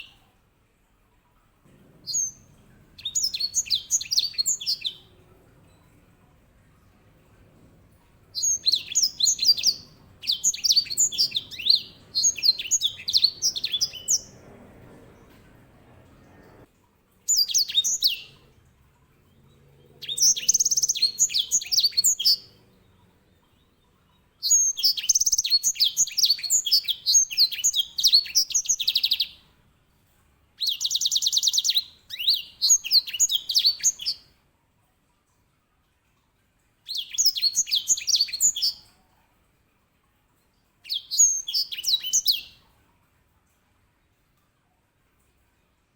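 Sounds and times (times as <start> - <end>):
finch singing: 2.0 - 6.0, 8.1 - 16.6, 17.3 - 18.4, 20.0 - 22.6, 23.5 - 29.4, 30.6 - 34.2, 36.9 - 38.9, 40.8 - 42.6.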